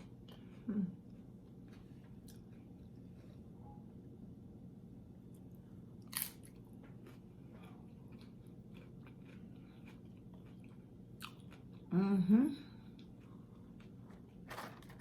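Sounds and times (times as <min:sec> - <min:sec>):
chewing chips: 0:06.0 - 0:11.9.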